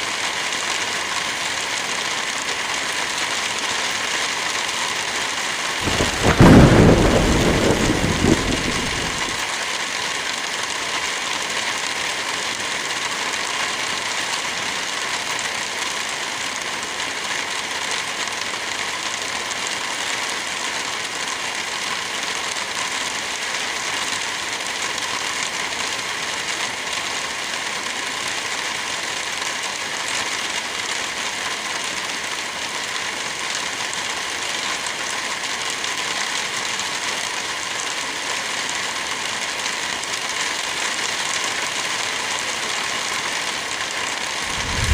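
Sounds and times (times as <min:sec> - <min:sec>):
heavy rain: 0:00.0 - 0:44.9
thunderclap rumbling: 0:05.8 - 0:09.4, 0:44.4 - 0:44.9.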